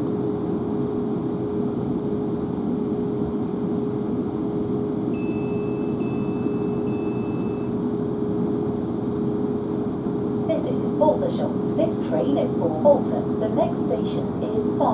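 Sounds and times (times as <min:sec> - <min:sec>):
train interior rumble and whine: 0:00.0 - 0:14.9
faint high-pitched tones: 0:05.1 - 0:07.8.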